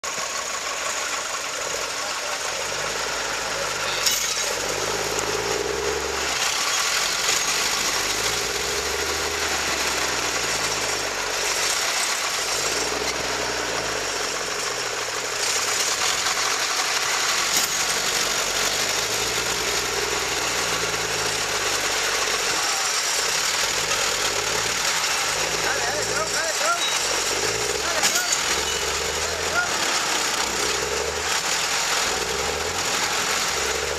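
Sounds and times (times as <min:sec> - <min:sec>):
tractor engine labouring: 0:00.0 - 0:33.9.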